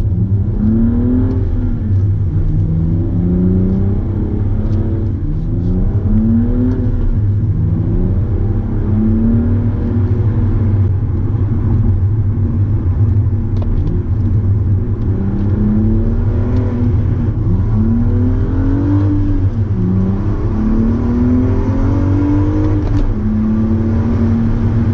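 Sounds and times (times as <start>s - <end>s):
car exhaust revving through gears: 0.0s - 24.9s.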